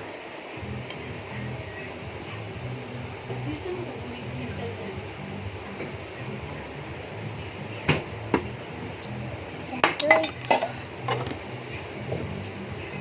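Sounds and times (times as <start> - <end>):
steady low hum: 0.0 - 13.0
dishes and utensils clinking: 9.8 - 11.4.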